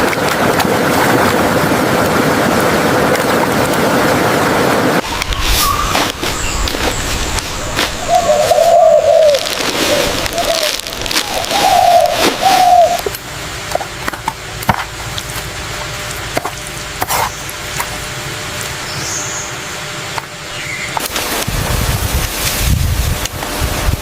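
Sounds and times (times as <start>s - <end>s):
bird hooting: 5.0s - 13.2s
steady background hiss: 5.0s - 24.0s
dove cooing: 5.8s - 13.2s
clicking crackling noise: 9.2s - 15.4s.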